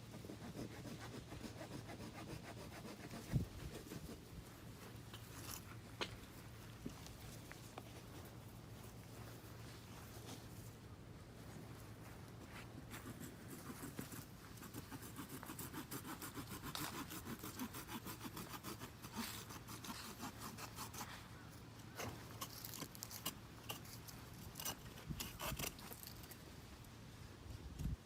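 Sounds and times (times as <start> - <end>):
rapid rasping scraping strokes: 12.9 - 21.3.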